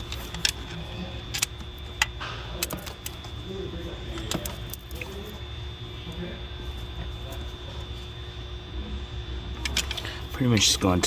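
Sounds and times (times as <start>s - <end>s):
hand tools clicking and clinking: 0.0s - 3.4s, 4.1s - 5.3s, 9.6s - 10.7s
low shop hum: 0.0s - 11.0s.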